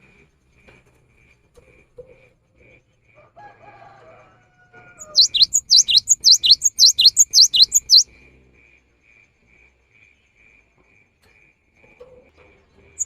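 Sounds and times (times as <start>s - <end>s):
faint high ticking: 5.0s - 8.0s.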